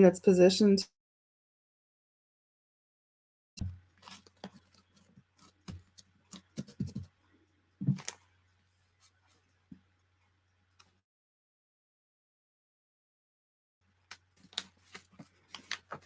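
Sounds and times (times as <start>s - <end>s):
paper taps clicks and rustles: 3.6s - 7.1s, 14.1s - 16.0s.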